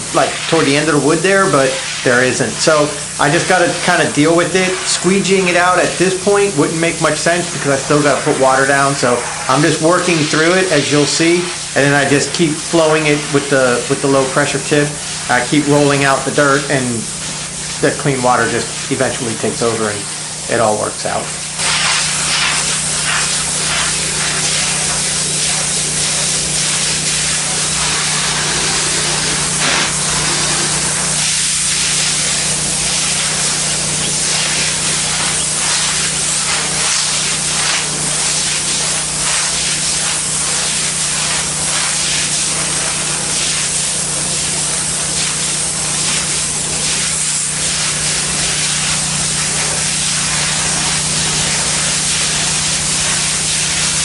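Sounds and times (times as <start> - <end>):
machine humming: 0.0 - 41.7
pressure washer spray hissing: 0.0 - 54.0.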